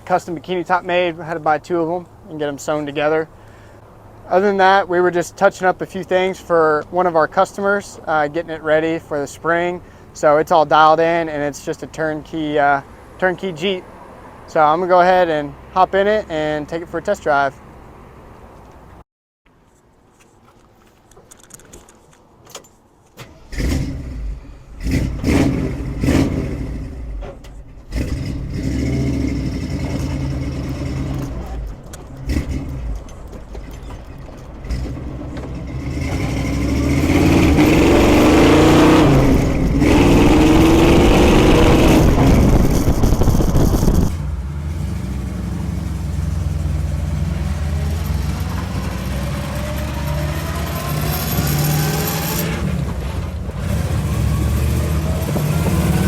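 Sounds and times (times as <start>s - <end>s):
car engine starting and revving: 23.2s - 33.6s, 34.4s - 56.0s.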